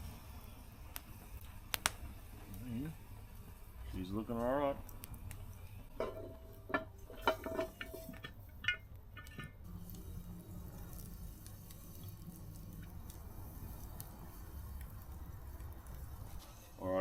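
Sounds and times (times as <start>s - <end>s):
pot lid clinking: 6.0s - 9.6s.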